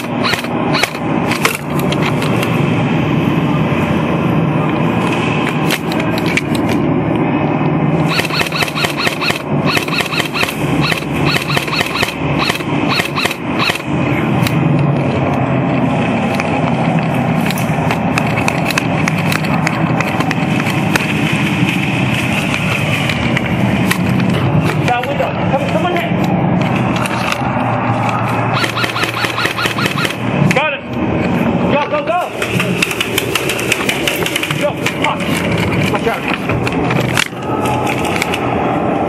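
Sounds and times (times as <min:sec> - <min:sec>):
loud rushing noise: 0:00.0 - 0:39.0
airsoft guns firing: 0:08.1 - 0:13.9, 0:28.5 - 0:30.2.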